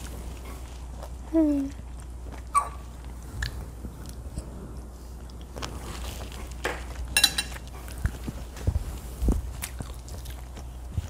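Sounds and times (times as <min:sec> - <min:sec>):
person chewing food: 0:00.0 - 0:11.0
steady low hum: 0:00.0 - 0:11.0
fork clinking against bowl: 0:07.2 - 0:07.6.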